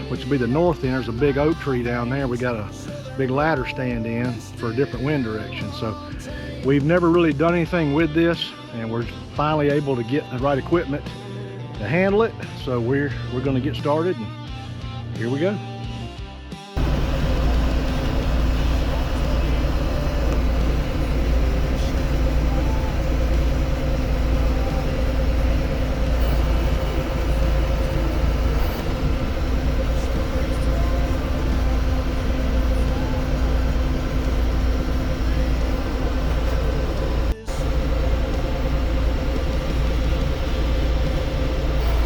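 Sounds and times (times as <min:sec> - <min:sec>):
tractor engine running: 0:16.8 - 0:42.0.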